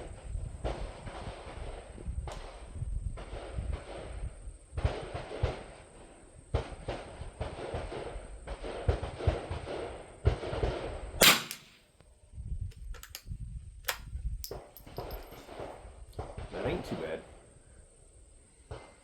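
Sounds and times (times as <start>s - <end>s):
rifle shot: 6.6s - 11.9s.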